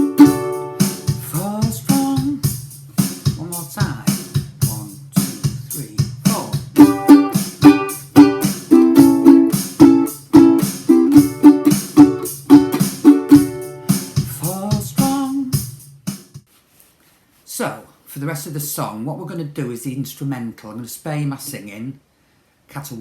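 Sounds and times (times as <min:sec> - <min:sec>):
ukulele strumming: 0:00.0 - 0:02.4, 0:06.3 - 0:15.5
drum machine beat: 0:00.0 - 0:16.4.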